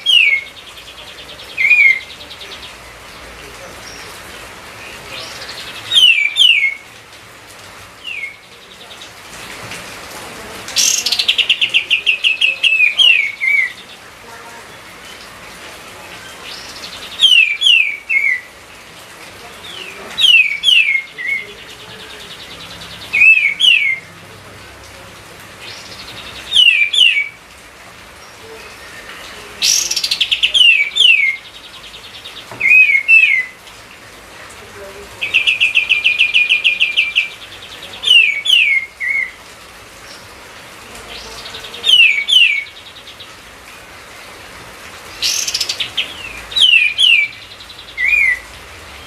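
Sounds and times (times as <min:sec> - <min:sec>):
songbird whistling: 0:05.9 - 0:06.8, 0:17.2 - 0:18.5, 0:23.2 - 0:24.0, 0:26.5 - 0:27.4, 0:48.0 - 0:48.4.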